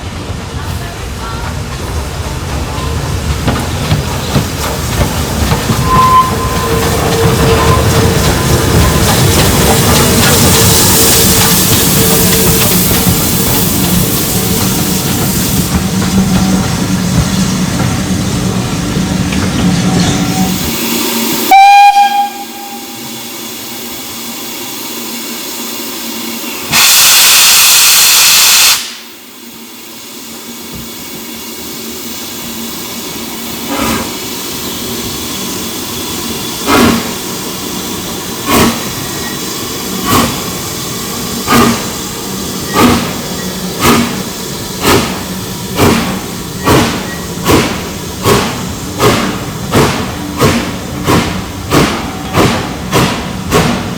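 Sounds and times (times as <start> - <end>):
steam hissing: 0.0 - 53.9
steam locomotive whistle: 5.8 - 8.1, 19.9 - 23.4, 26.6 - 29.2.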